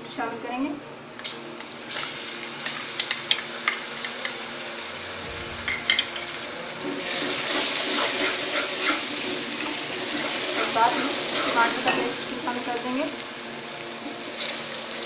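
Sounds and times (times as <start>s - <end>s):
onions sizzling in oil: 1.2s - 15.0s.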